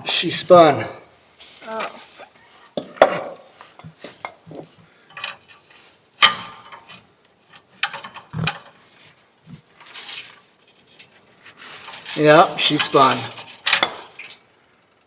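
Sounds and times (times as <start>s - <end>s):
hand tools clinking on metal: 11.8s - 14.4s
sharp metallic clank: 12.8s - 14.2s.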